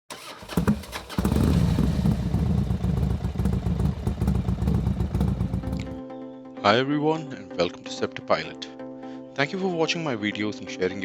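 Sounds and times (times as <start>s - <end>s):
motorcycle engine throbbing: 0.4s - 6.0s.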